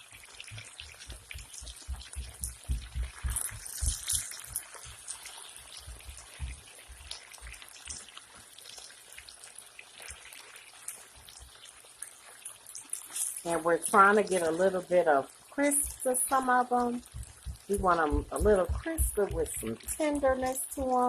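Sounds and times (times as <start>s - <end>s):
potatoes sizzling in a pan: 0.0s - 21.0s
spatula knocking on pan: 0.6s - 4.1s, 17.0s - 20.0s.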